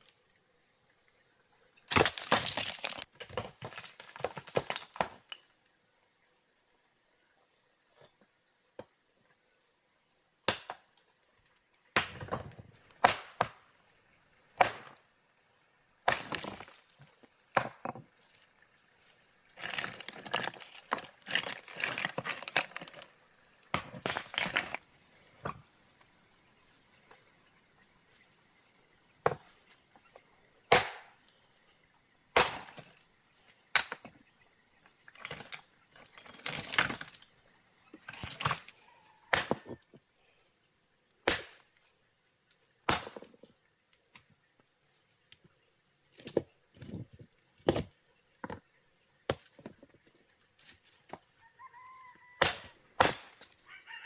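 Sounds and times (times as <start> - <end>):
rubble rattling and scraping: 1.8 - 5.5, 16.0 - 25.9, 32.6 - 40.0, 46.1 - 50.3
stones knocking together: 1.9 - 5.5, 12.0 - 13.6, 16.0 - 18.3, 19.5 - 25.6, 35.1 - 37.3, 39.3 - 39.9, 42.9 - 43.5, 46.2 - 48.7.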